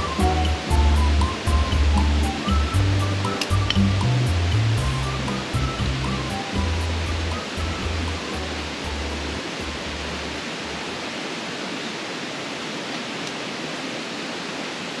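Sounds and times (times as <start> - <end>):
low bass pulses: 0.0 - 10.9.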